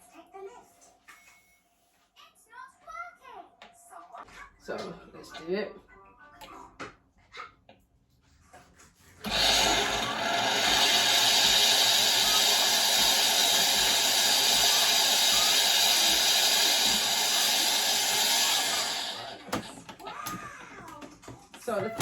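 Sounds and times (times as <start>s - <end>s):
coffee machine hissing steam: 9.3s - 19.6s.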